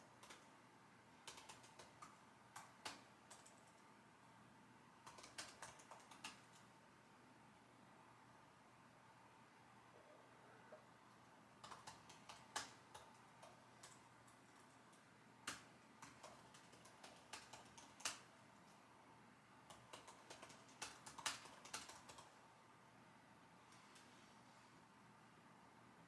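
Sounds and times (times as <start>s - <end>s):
typing on computer keyboard: 0.1s - 0.5s, 1.2s - 3.8s, 5.0s - 6.7s, 11.6s - 18.8s, 19.6s - 22.4s.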